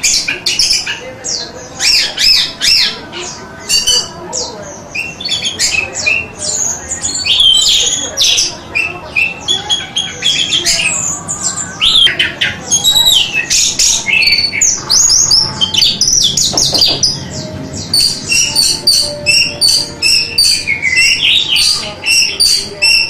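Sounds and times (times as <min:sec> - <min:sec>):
thrush singing: 0:04.8 - 0:23.0.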